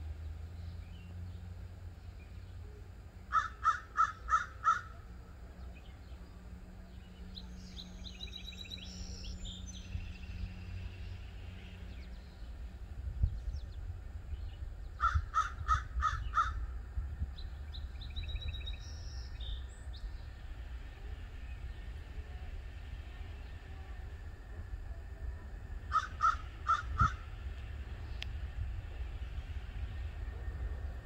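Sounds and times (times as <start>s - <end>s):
steady low rumble: 0.0s - 31.0s
bird calling quickly: 3.3s - 5.0s, 14.9s - 16.6s, 25.9s - 27.3s.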